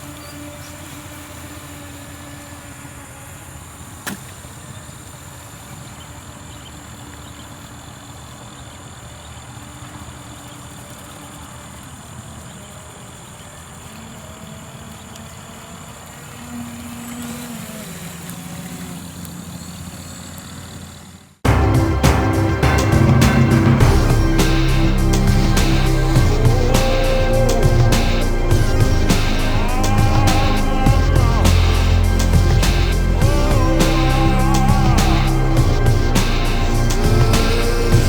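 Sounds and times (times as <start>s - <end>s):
rc boat motor whine: 0.0s - 38.0s
steady background hiss: 21.5s - 38.0s.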